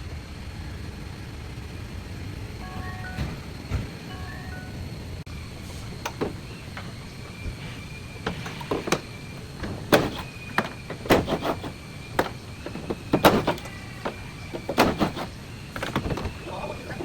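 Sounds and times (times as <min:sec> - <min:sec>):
car parts knocking and clunking: 0:02.4 - 0:04.2, 0:04.8 - 0:17.0
faint high steady tone: 0:02.5 - 0:05.5.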